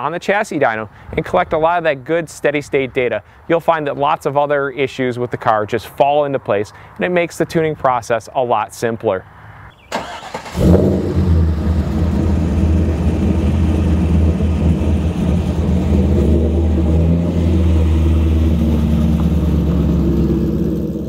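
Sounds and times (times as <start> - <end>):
car engine idling: 10.0 - 21.0.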